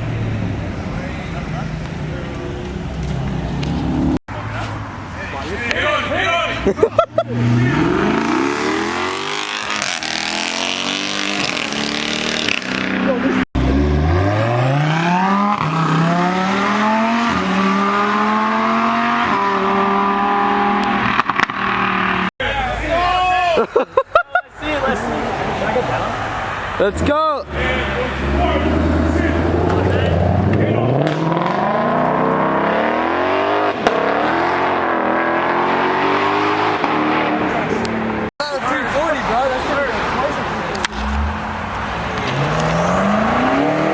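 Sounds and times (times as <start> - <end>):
car engine accelerating: 0.0 - 4.9, 5.5 - 22.3, 24.7 - 43.9.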